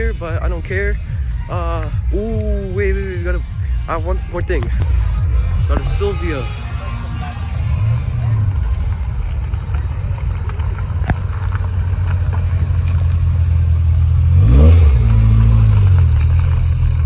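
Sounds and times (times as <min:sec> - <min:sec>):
car engine idling: 0:04.8 - 0:17.0
engine throttle blip: 0:04.8 - 0:17.0.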